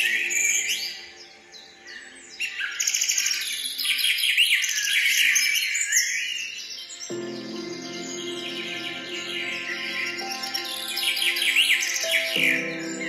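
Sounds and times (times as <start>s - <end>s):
soft music: 0.0s - 3.5s, 6.8s - 13.0s
small birds chirping: 0.0s - 13.0s.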